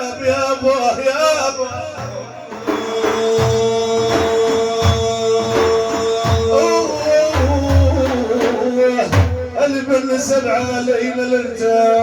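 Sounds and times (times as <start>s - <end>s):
frame drums beating: 1.7s - 9.8s.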